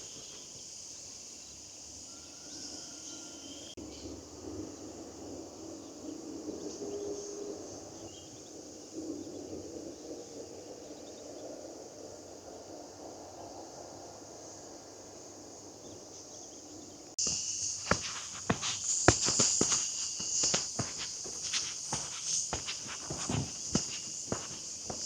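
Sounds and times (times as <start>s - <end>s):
shrill insect chorus: 0.0s - 25.0s
footsteps crunching on path: 17.2s - 25.0s.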